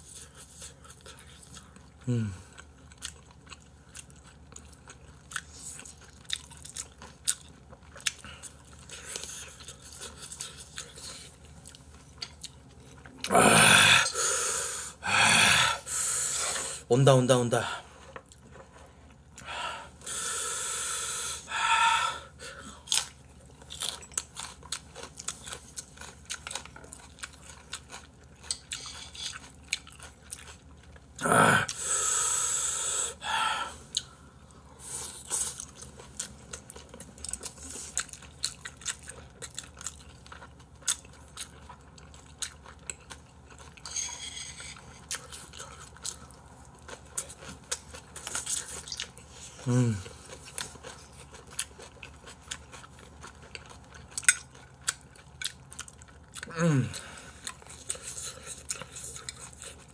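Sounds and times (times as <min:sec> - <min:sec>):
chewing food: 0:00.0 - 0:13.4, 0:17.8 - 0:20.0, 0:22.4 - 0:31.8, 0:33.8 - 0:59.9
breathy hisses: 0:13.7 - 0:16.8, 0:19.4 - 0:22.6, 0:31.7 - 0:33.8.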